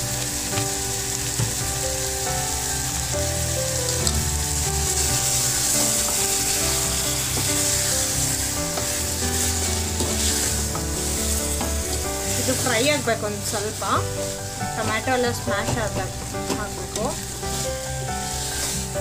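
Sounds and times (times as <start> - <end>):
food sizzling in a pot: 0.0 - 19.0
wooden spatula stirring: 4.0 - 19.0.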